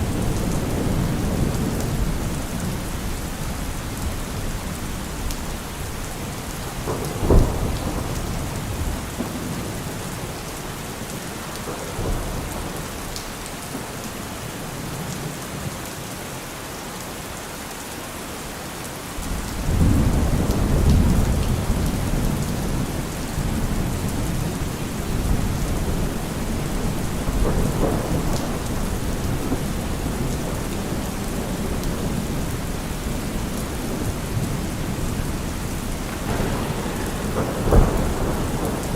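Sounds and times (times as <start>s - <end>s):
low rumble of thunder: 0.0s - 15.1s, 19.2s - 38.9s
steady rain falling: 0.0s - 38.9s
thunder crack: 6.8s - 10.3s, 19.7s - 38.9s.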